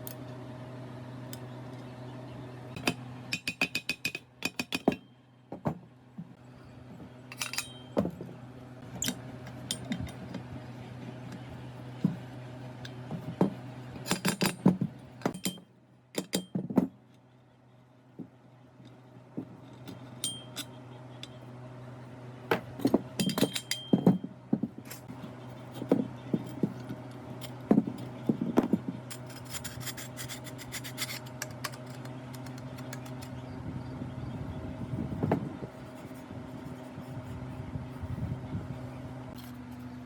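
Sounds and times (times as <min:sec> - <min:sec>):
low machine hum: 0:00.0 - 0:40.0
metal parts clinking: 0:07.3 - 0:08.2, 0:14.0 - 0:16.6, 0:19.6 - 0:21.4, 0:22.5 - 0:33.3.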